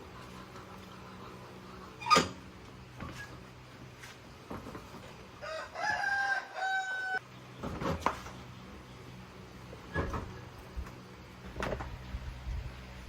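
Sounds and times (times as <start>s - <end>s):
rooster crowing: 5.4s - 7.2s
steady low hum: 7.2s - 13.0s.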